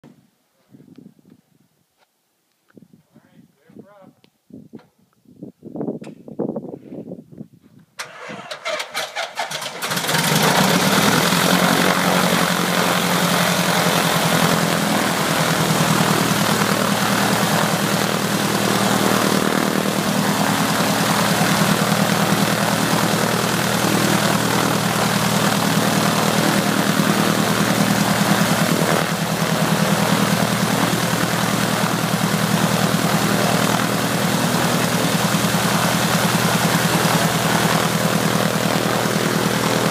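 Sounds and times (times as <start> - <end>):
aircraft engine starter cranking: 8.0 - 12.4
aircraft engine idling: 8.1 - 39.9.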